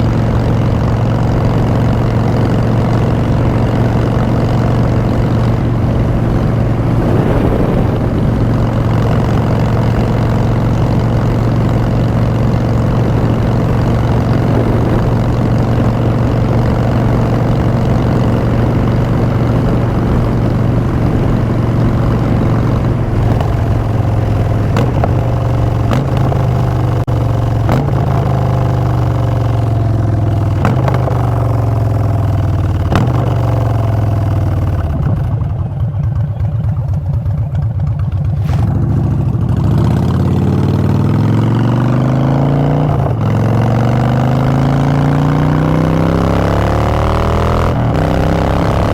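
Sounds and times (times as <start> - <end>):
motorcycle engine cruising: 0.0 - 48.9.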